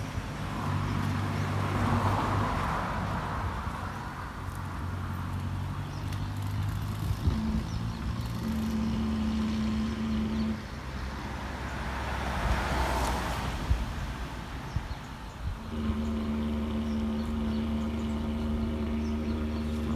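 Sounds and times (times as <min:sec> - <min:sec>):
vehicle engine running: 0:00.0 - 0:13.0, 0:13.7 - 0:19.9
vehicle passing: 0:00.0 - 0:19.9.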